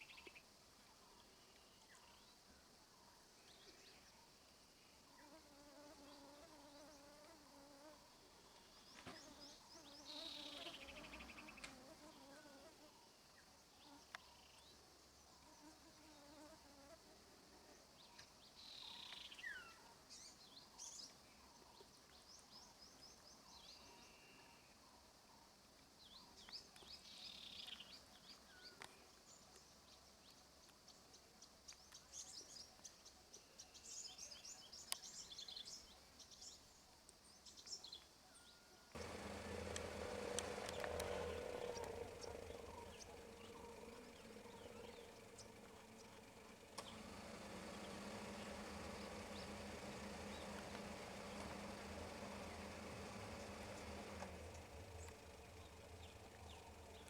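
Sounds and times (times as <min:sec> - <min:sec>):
faint insect buzz: 0:03.0 - 0:19.4, 0:39.0 - 0:57.0
birds chirping in trills: 0:39.0 - 0:57.0.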